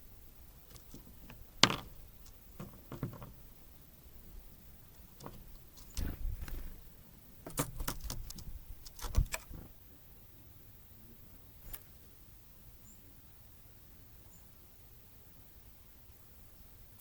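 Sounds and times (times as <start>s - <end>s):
birds tapping and clattering: 0.7s - 3.5s, 4.9s - 6.8s, 7.4s - 9.7s.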